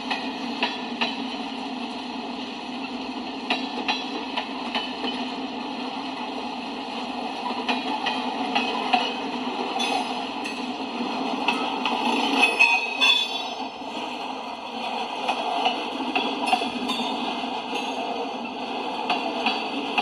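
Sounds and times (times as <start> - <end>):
freight train wheels rumbling: 0.0 - 20.0
wheels clanking over rail joints: 7.4 - 14.1, 14.7 - 20.0.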